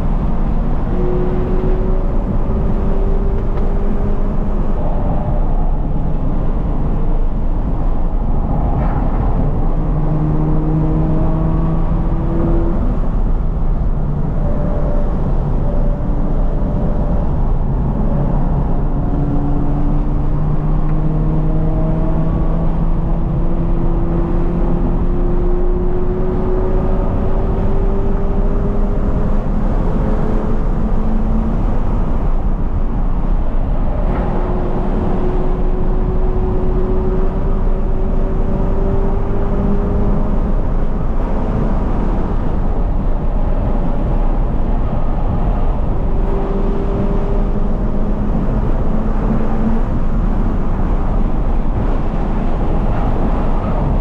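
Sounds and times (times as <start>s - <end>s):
low rumble: 0.0s - 23.7s
car engine accelerating: 0.0s - 54.0s.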